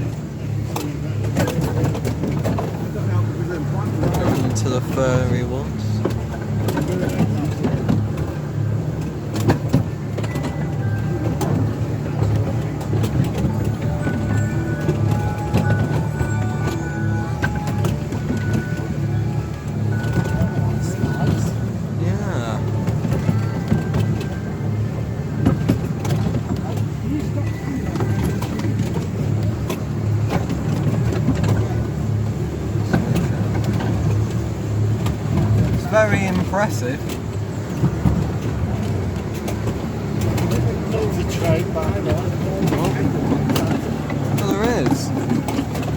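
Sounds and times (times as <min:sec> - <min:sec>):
low engine rumble: 0:00.0 - 0:45.9
miniature train running: 0:00.0 - 0:45.9
sharp clicks and knocks: 0:03.8 - 0:21.6.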